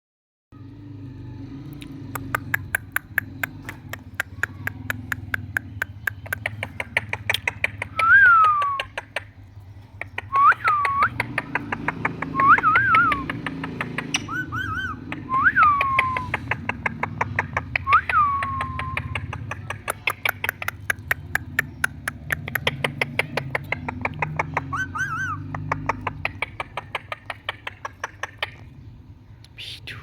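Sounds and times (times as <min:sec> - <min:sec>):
rapid sharp clicks: 0:02.2 - 0:14.3, 0:25.4 - 0:28.6
parakeet whistled calls: 0:14.0 - 0:16.6, 0:24.6 - 0:25.6.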